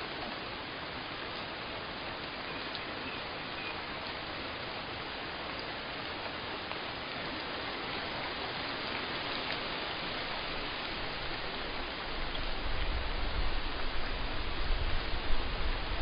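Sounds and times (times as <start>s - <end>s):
steady rain hissing: 0.0s - 16.0s
faint raindrop ticks: 1.2s - 4.4s, 5.2s - 10.3s, 12.1s - 12.6s.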